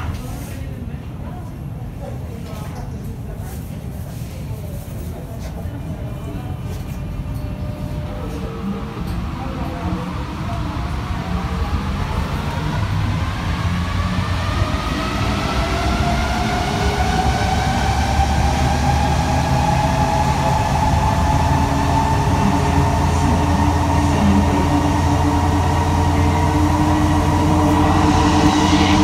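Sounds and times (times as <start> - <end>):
train running rumble: 5.2 - 29.0
traction motor whine: 11.2 - 29.0.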